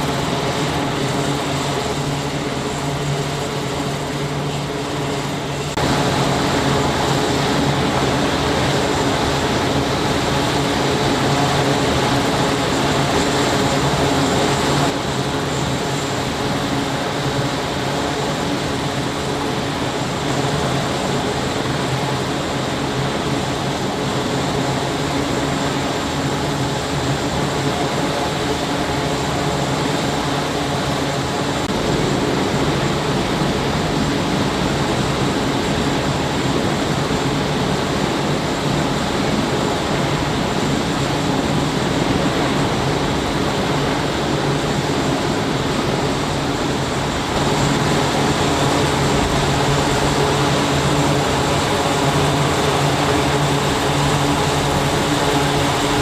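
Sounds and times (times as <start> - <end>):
machinery roaring: 45.2 - 56.0.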